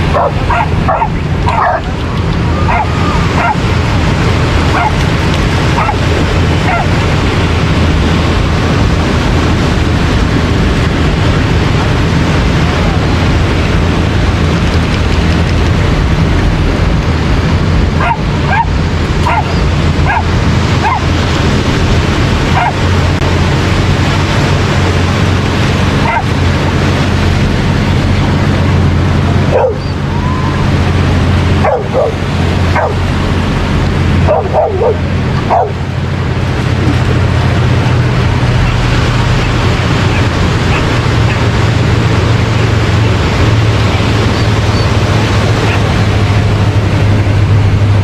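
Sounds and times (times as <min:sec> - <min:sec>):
dogs barking and yipping: 0:00.0 - 0:07.5, 0:17.9 - 0:21.2, 0:22.4 - 0:23.0, 0:25.9 - 0:26.8, 0:29.4 - 0:36.1, 0:37.9 - 0:46.3
surf roaring: 0:00.0 - 0:48.0
wind: 0:00.0 - 0:48.0.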